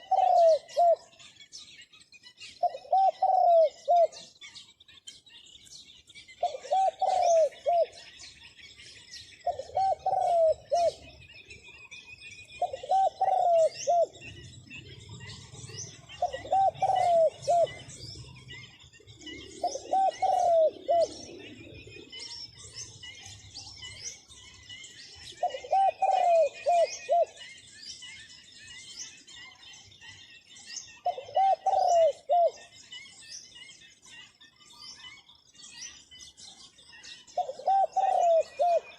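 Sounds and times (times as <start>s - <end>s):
dove cooing: 0.0s - 1.2s, 2.6s - 4.3s, 6.4s - 8.1s, 9.4s - 11.3s, 12.6s - 18.6s, 19.2s - 22.8s, 25.2s - 27.4s, 31.0s - 32.7s, 37.4s - 38.9s
small birds chirping: 0.0s - 38.9s.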